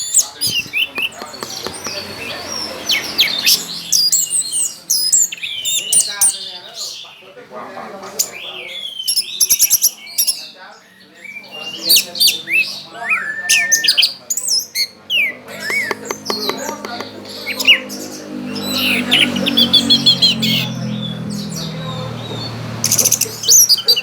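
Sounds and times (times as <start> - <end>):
thrush singing: 14.9 - 24.0.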